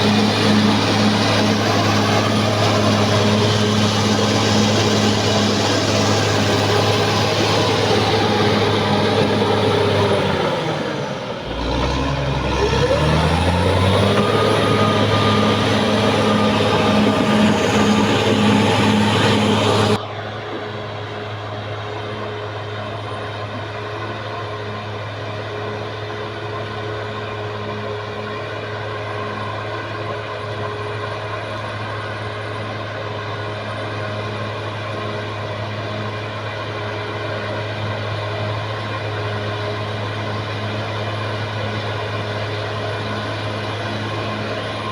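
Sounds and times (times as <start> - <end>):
bulldozer diesel engine revving: 0.0 - 20.0, 37.8 - 44.9.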